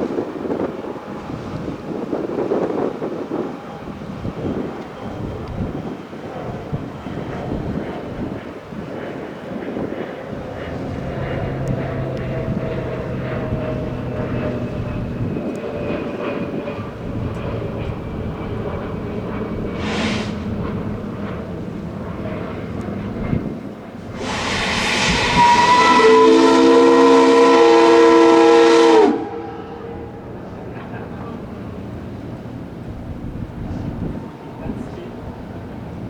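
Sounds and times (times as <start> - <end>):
mechanical rumble: 10.3 - 26.8
rush of steam: 19.6 - 21.2, 23.9 - 31.6
brief hiss: 19.8 - 20.5, 24.2 - 25.8
steam whistle chord: 19.8 - 20.5, 24.1 - 30.2.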